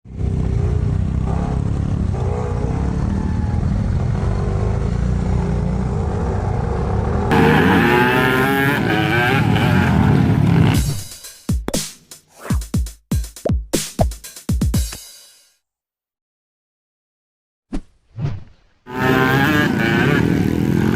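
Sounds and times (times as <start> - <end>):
dirt bike engines revving: 0.1 - 11.0, 18.9 - 20.9.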